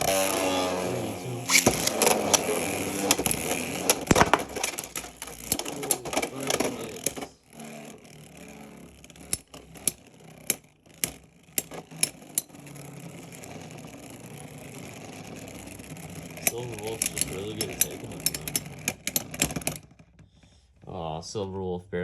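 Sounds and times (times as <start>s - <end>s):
spinning tops clattering: 0.0s - 19.9s
sharp clicks: 1.4s - 7.3s, 16.4s - 19.8s.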